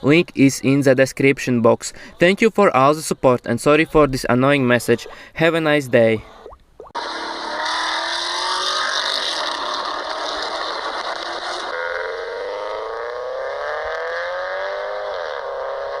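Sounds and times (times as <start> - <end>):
car engine accelerating: 7.0 - 16.0.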